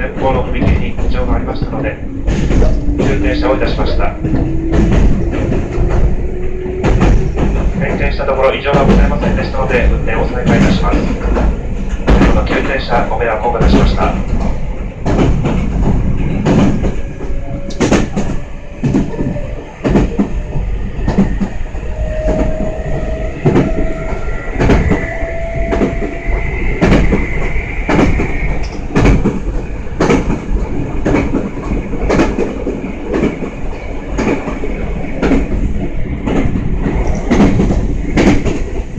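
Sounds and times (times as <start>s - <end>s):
train running rumble: 0.0s - 38.9s
train wheels clicking over rail joints: 0.0s - 38.9s.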